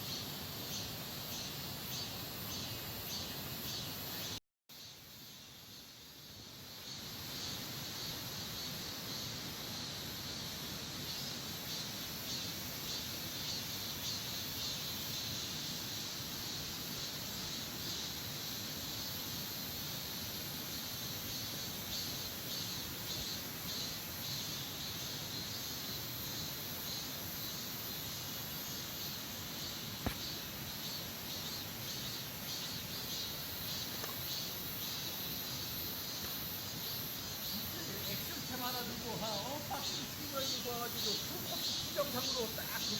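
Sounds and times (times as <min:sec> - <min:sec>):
insects chirring: 0:00.0 - 0:42.9
sharp click: 0:30.0 - 0:30.3.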